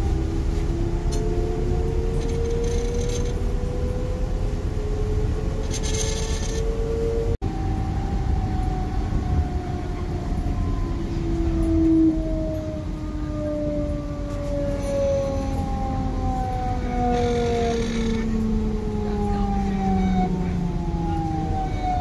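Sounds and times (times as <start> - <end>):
train motor whine: 0.0 - 4.3, 5.1 - 7.1, 16.9 - 18.6
train rumbling: 0.0 - 22.0.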